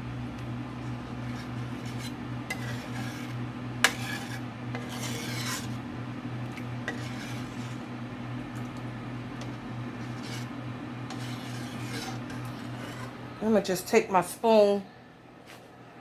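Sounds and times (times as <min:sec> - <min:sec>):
spoon scraping sauce in a pan: 0:00.8 - 0:08.0, 0:08.6 - 0:13.2.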